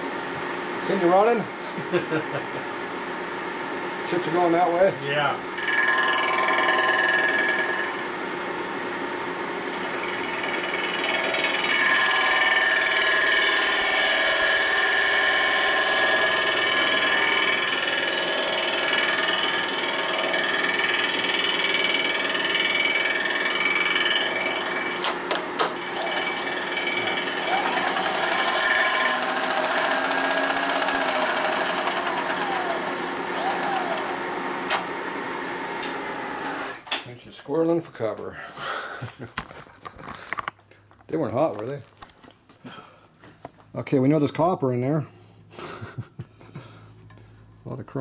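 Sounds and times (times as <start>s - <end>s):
milling cutter whine: 9.8s - 36.8s.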